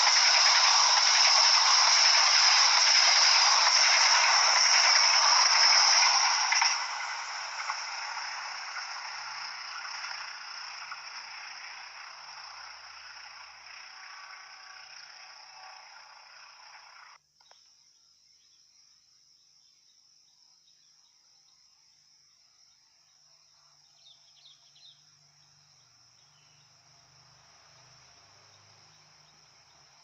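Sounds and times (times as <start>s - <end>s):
high-pitched chirring: 0.0s - 17.0s
train wheels on rails: 0.0s - 17.2s.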